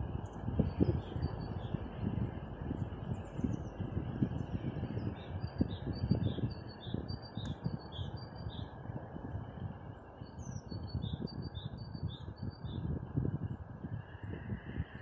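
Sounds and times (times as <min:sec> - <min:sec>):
gusty rushing noise: 0:00.0 - 0:07.8, 0:12.9 - 0:15.0.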